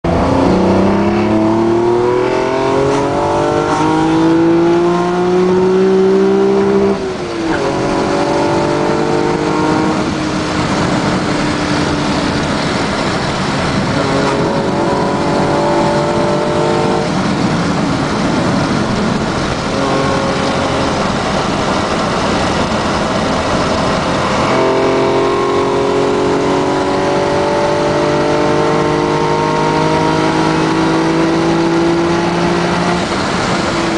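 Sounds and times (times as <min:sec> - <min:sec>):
car engine accelerating: 0:00.0 - 0:33.9.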